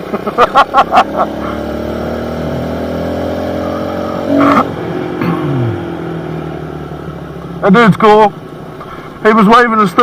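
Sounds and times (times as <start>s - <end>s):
small motorbike engine running: 0.0s - 6.0s.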